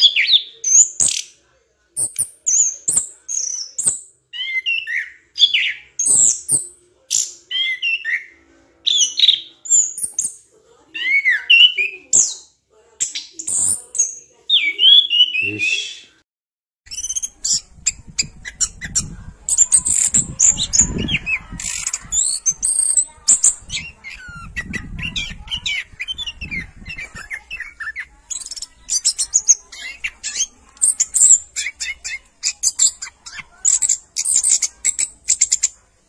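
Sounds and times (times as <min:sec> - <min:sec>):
birds chirping and squawking: 0:00.0 - 0:01.4, 0:02.0 - 0:16.2, 0:16.9 - 0:35.8.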